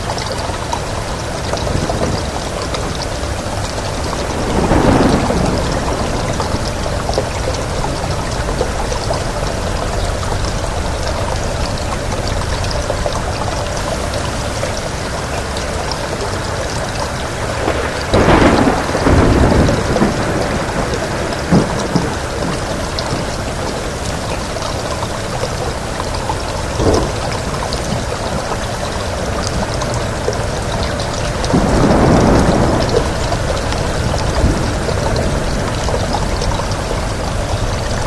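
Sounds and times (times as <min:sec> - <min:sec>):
heavy rain: 0:00.0 - 0:38.0
thunder rumbling: 0:00.1 - 0:38.0
sharp thunder crack: 0:04.2 - 0:07.7, 0:17.6 - 0:22.7.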